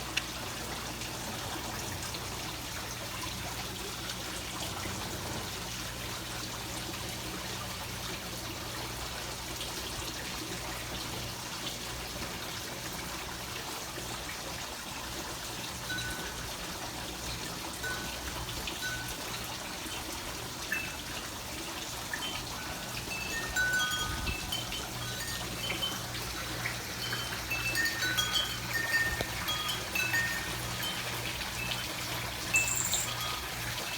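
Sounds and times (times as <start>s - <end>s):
trickling water: 0.0s - 33.9s
short high ringing notes: 32.5s - 33.9s.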